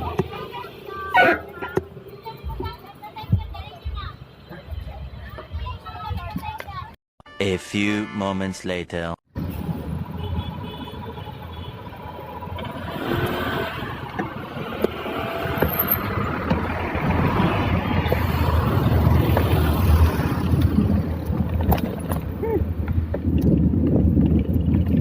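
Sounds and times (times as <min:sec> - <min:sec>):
road traffic rumble: 0:00.0 - 0:07.0, 0:09.3 - 0:25.0.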